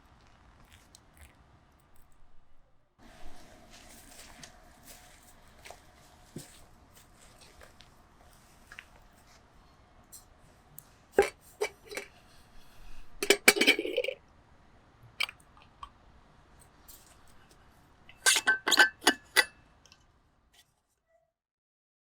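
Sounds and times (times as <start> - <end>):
metal kettle clinking: 11.2 - 12.1, 13.2 - 14.2, 18.1 - 19.5.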